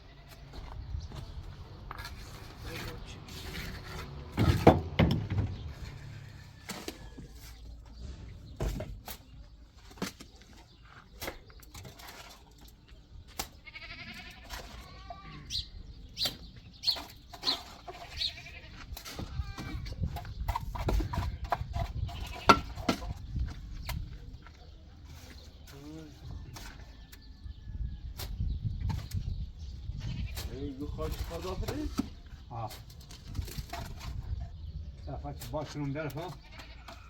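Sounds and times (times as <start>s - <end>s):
livestock bleating: 0.0s - 0.5s, 13.6s - 15.6s, 18.0s - 19.6s, 36.4s - 37.0s.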